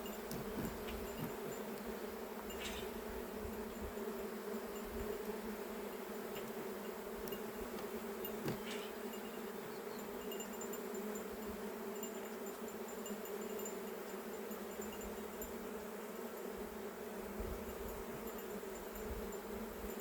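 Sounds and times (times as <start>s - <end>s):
honeybees humming: 0.0s - 20.0s.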